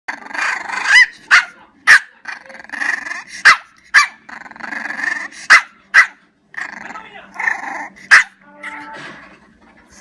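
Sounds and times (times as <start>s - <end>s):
dog growling: 0.1s - 1.0s, 2.2s - 3.4s, 4.2s - 5.5s, 6.5s - 8.1s
dog barking: 0.9s - 2.2s, 3.4s - 4.2s, 5.5s - 6.2s, 8.1s - 8.4s.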